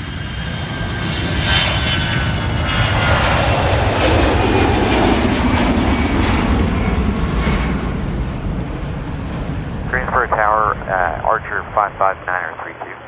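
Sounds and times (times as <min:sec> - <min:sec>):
airplane passing overhead: 0:00.0 - 0:13.0.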